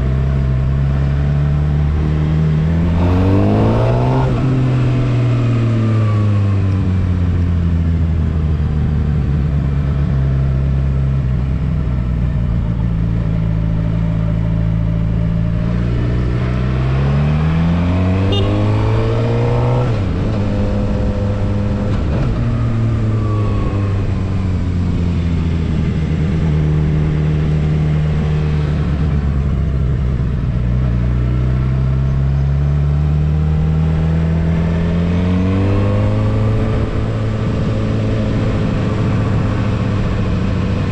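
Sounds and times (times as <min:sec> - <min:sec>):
motorcycle engine revving: 0:00.0 - 0:08.1, 0:08.9 - 0:40.9.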